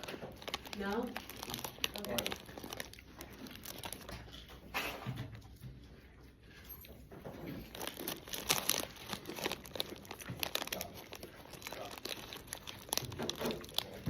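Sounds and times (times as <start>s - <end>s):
plastic snack bag crinkling: 0.0s - 4.8s, 7.2s - 14.0s.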